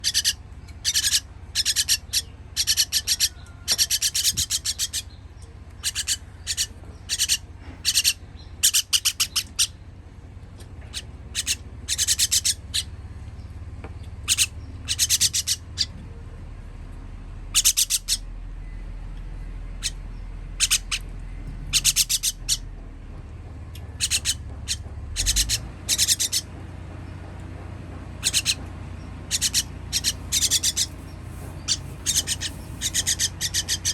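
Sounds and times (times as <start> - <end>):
baby birds begging calls: 0.0 - 9.8, 10.8 - 13.2, 14.1 - 16.1, 17.4 - 18.3, 19.8 - 22.8, 23.8 - 26.6, 28.2 - 33.9
steady low hum: 0.0 - 33.9.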